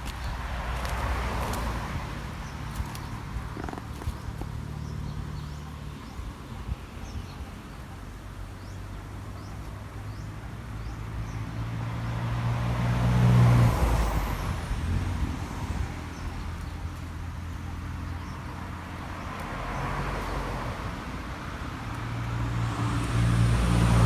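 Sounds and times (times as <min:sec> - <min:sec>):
vehicle engine passing by: 0:11.2 - 0:24.0.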